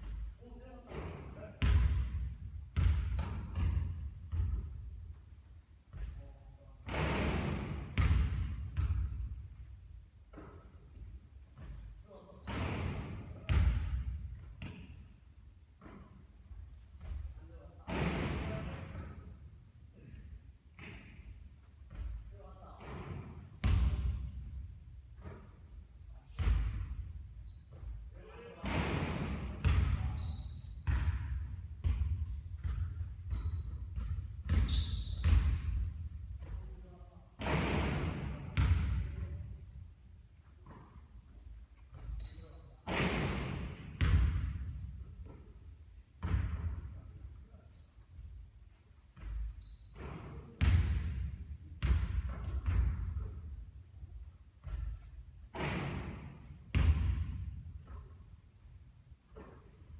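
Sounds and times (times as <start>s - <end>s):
basketball bouncing on court floor: 0.0s - 5.2s, 5.9s - 9.7s, 10.3s - 15.1s, 15.8s - 19.4s, 20.8s - 39.6s, 40.5s - 45.6s, 46.2s - 47.8s, 49.1s - 58.4s
short high squeaks: 25.9s - 26.4s, 33.5s - 35.2s, 42.2s - 42.9s, 47.7s - 48.2s, 49.6s - 50.5s.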